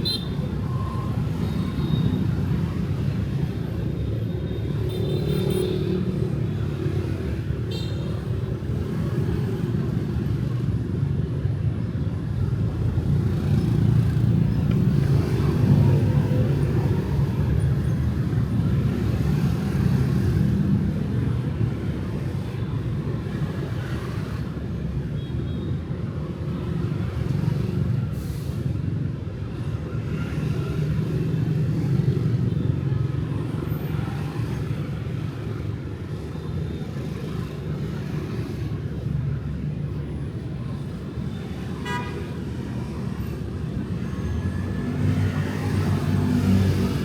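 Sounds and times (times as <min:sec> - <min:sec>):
street traffic rumble: 0:00.0 - 0:47.0
motorbike and car engines passing: 0:42.7 - 0:47.0.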